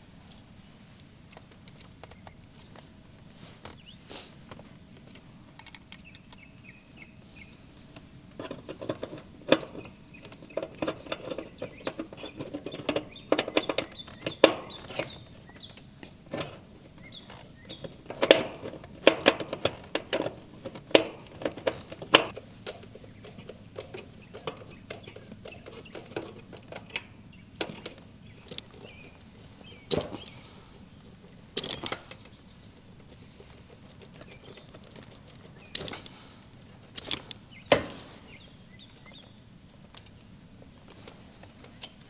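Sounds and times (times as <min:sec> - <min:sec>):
screwdriver and metal parts clicking: 0:08.4 - 0:29.2, 0:31.6 - 0:32.4, 0:33.8 - 0:36.2.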